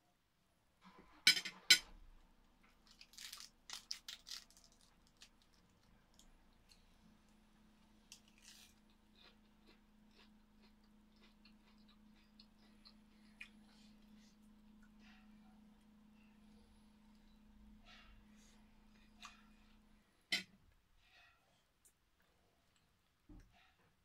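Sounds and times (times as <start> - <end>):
faint steady hum: 0.0 - 24.0
chewing and crunching food: 2.7 - 7.4, 8.0 - 15.4.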